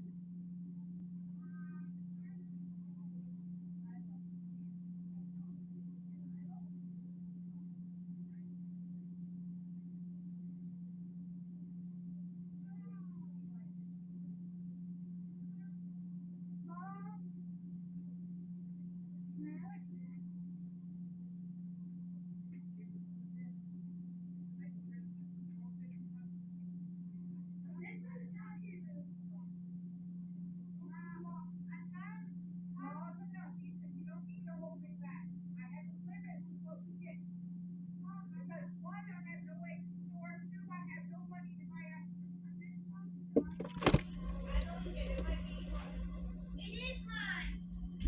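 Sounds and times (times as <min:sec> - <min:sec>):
low electrical hum: 0:00.0 - 0:48.0
faint indistinct voices: 0:00.7 - 0:08.6, 0:43.4 - 0:48.0.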